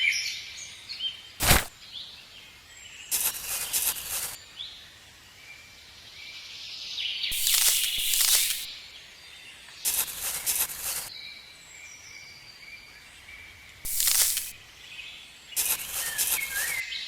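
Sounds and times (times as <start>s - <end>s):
loud hissing rush: 1.4s - 1.7s, 7.3s - 8.7s, 13.9s - 14.6s.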